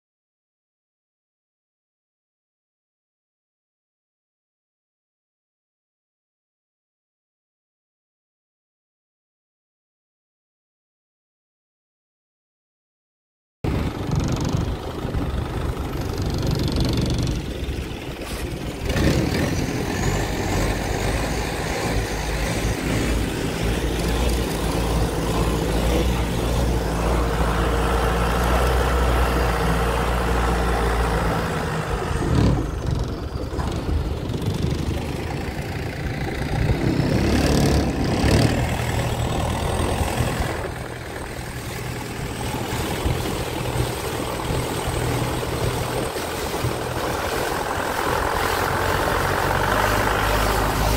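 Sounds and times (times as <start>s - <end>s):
engine running: 13.6s - 50.9s.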